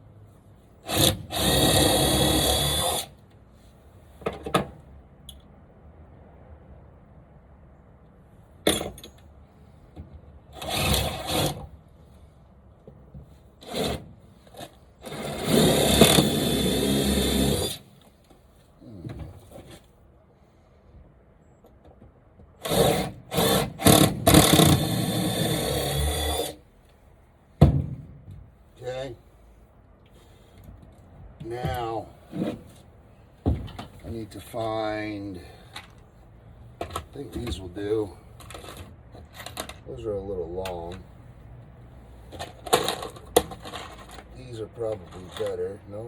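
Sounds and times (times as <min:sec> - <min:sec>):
power drill whine: 0:00.9 - 0:03.1, 0:15.0 - 0:17.8, 0:22.6 - 0:26.6.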